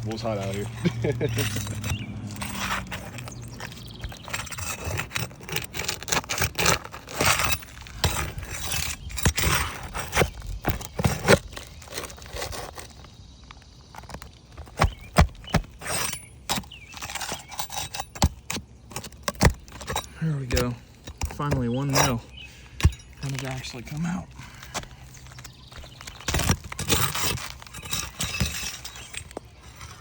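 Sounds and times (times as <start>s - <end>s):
metal tool scraping under shingles: 0.0s - 30.0s.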